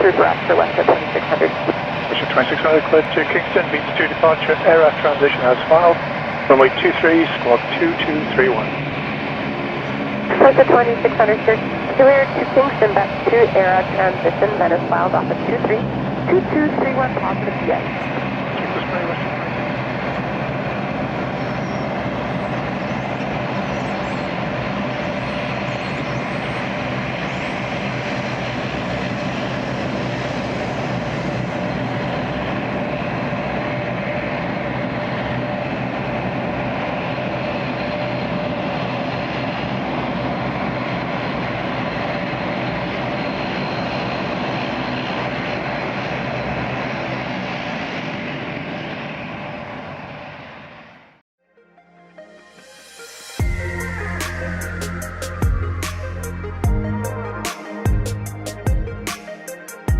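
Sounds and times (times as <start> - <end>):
jet aircraft engines running: 0.0 - 51.2, 52.2 - 59.9.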